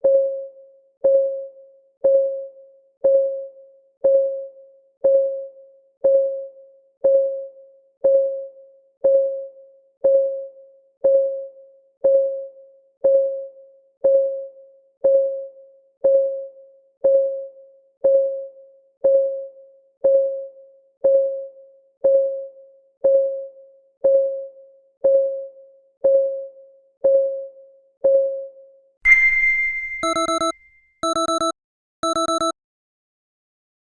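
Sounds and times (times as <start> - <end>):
bright ding: 29.1 - 30.8
short alarm beeps: 29.1 - 32.5
timer clock ticking: 30.0 - 32.5.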